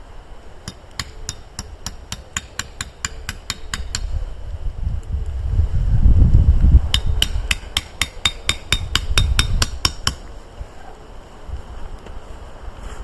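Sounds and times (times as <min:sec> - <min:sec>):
hammer striking metal peg: 0:00.7 - 0:04.1, 0:06.9 - 0:10.2.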